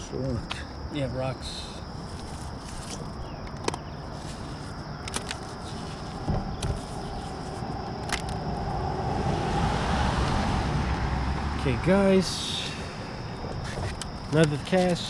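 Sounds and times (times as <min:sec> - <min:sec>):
road vehicle approaching: 0:05.5 - 0:14.6.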